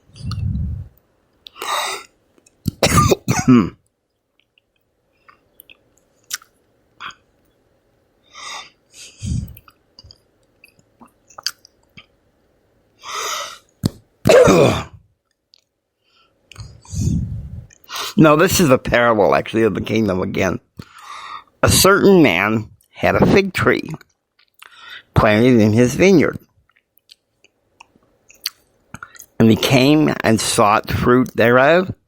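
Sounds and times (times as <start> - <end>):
man clearing throat and coughing: 2.8 - 3.8, 14.3 - 15.0.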